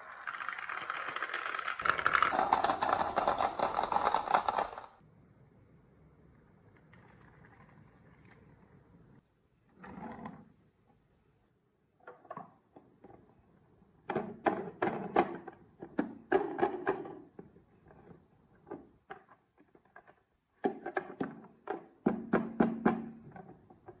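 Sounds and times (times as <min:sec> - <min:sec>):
wooden marbles clattering on track: 0:00.0 - 0:04.9.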